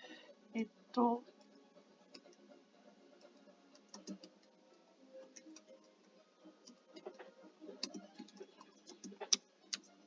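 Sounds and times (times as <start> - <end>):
computer keyboard typing: 3.2 - 4.6, 5.3 - 6.0, 6.6 - 10.0.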